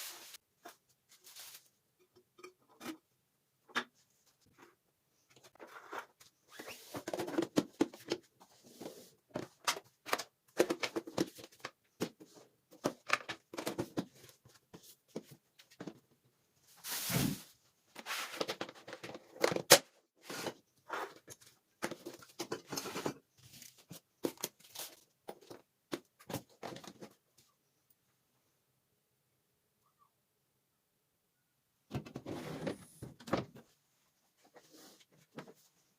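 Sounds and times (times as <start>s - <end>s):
rustling of household items: 0.0s - 2.0s, 16.6s - 19.4s, 20.2s - 27.2s.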